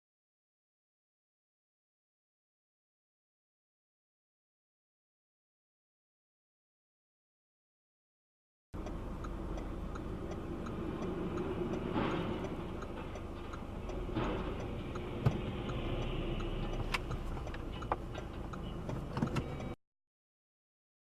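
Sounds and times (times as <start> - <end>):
engine and road rumble: 8.8 - 19.8
faint even ticking: 8.8 - 19.8.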